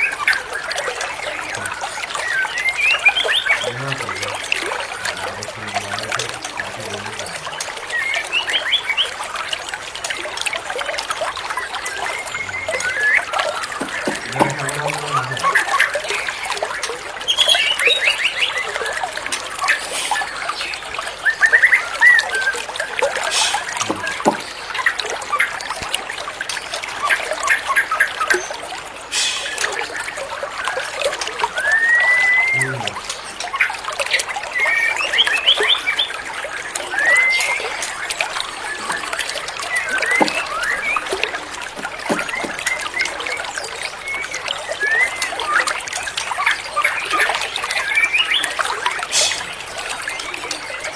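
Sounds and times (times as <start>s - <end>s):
water trickling: 0.0s - 50.9s
bird whistling and chirping: 11.6s - 14.7s, 17.3s - 18.7s, 23.3s - 24.6s, 31.6s - 32.8s, 36.9s - 43.4s.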